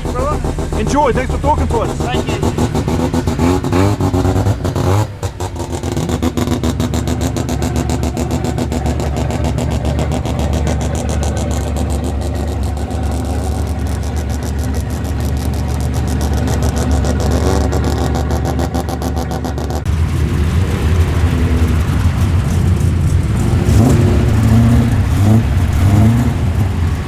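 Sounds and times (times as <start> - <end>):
rotary engine revving: 0.0 - 27.0.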